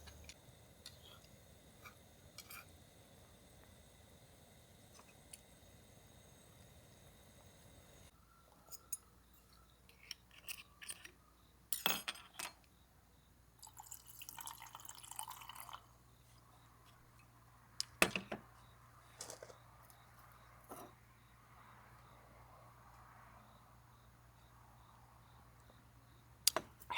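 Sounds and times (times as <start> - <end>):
liquid pouring: 13.6 - 15.9.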